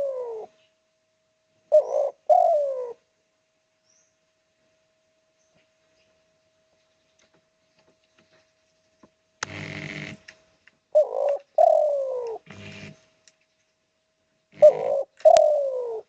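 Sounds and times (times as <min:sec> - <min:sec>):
dove calling: 0:00.0 - 0:00.6, 0:01.7 - 0:03.0, 0:10.9 - 0:13.2, 0:14.5 - 0:16.0.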